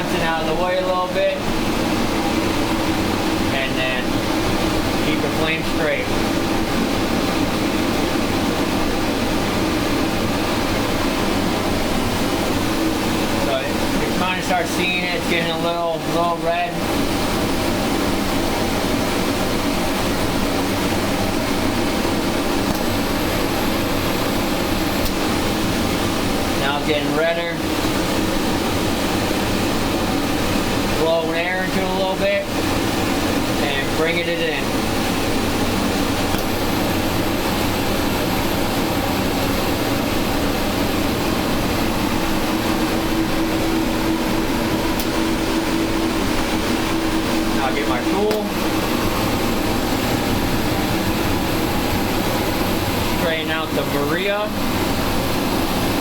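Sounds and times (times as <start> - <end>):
hand torch burning with rushing noise: 0.0 - 56.0
steady low hum: 0.0 - 56.0.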